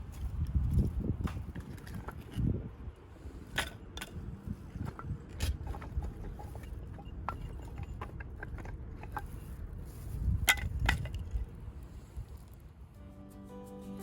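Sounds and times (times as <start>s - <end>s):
firewood cracking and knocking: 0.0s - 2.6s, 3.5s - 11.5s.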